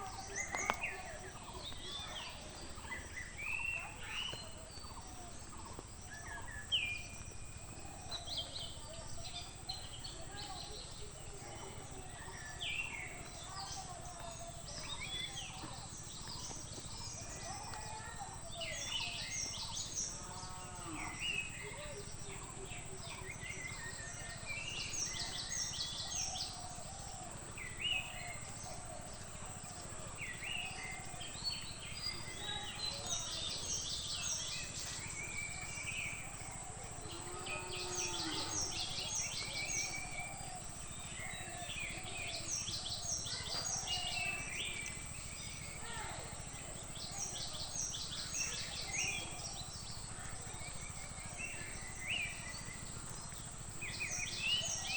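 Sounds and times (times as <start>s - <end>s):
birds chirping and calling: 0.0s - 54.9s.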